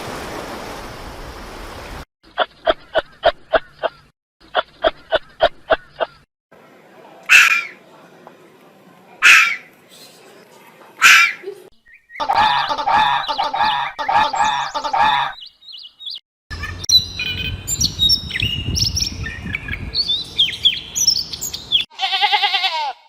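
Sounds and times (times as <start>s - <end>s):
fast repeated bird calls: 7.3s - 7.8s, 9.2s - 9.7s, 12.0s - 17.5s
birds chirping and whistling: 11.1s - 21.9s.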